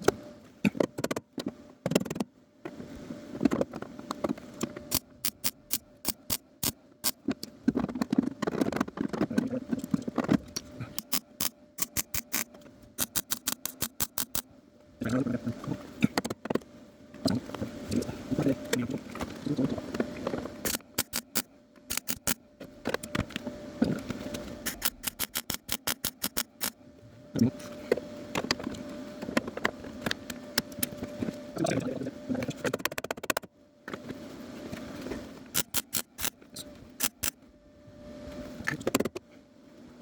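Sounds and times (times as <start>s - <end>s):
faint steady hum: 0.0s - 40.0s
welder arcing crackle: 35.5s - 36.4s, 37.0s - 37.4s.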